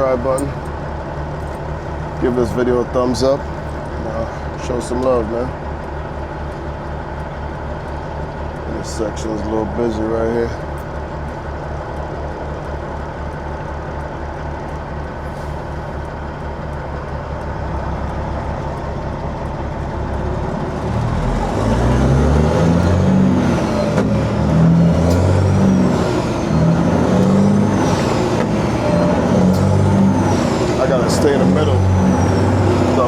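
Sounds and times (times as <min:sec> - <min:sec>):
truck diesel engine revving: 0:00.0 - 0:33.0.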